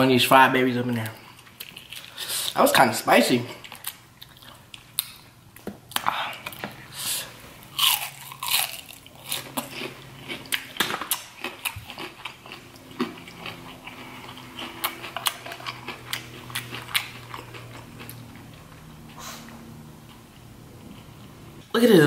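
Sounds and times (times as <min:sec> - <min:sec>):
chewing fried shrimp: 0:00.9 - 0:02.6, 0:03.5 - 0:21.4.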